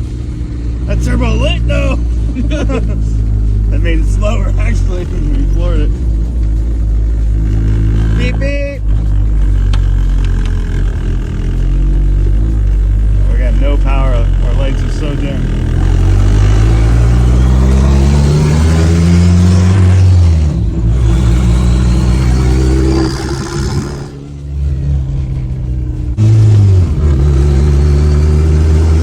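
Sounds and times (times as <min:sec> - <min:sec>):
turbocharged car engine accelerating: 0:00.0 - 0:29.0.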